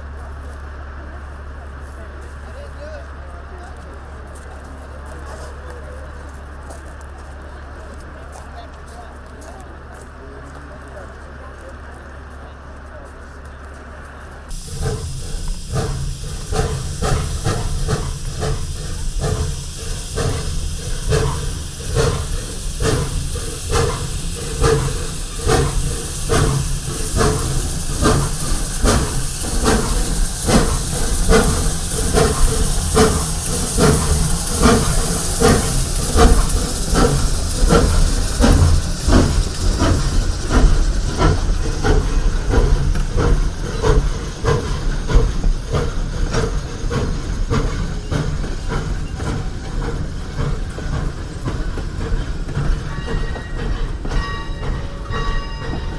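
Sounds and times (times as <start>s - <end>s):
steam locomotive exhaust beats: 0.0s - 55.9s
steam hissing: 14.4s - 55.9s.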